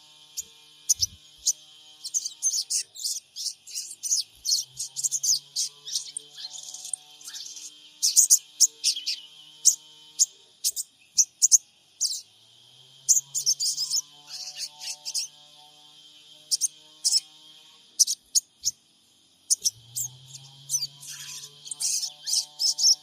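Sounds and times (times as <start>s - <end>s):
birds chirping sharply: 0.0s - 12.4s, 13.0s - 15.6s, 16.4s - 17.4s, 18.0s - 18.8s, 19.4s - 23.0s
faint low hum: 19.4s - 23.0s.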